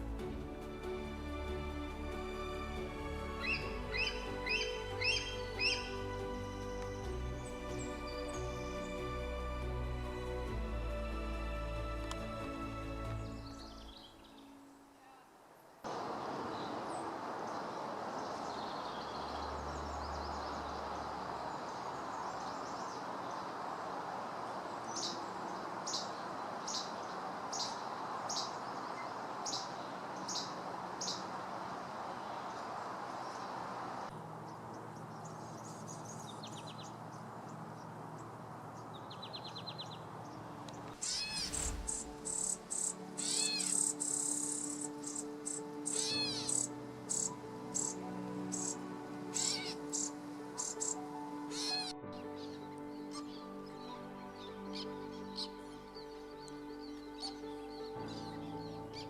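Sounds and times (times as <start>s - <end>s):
steady background hiss: 0.0s - 59.0s
wild birds calling: 3.4s - 6.0s, 15.9s - 59.0s.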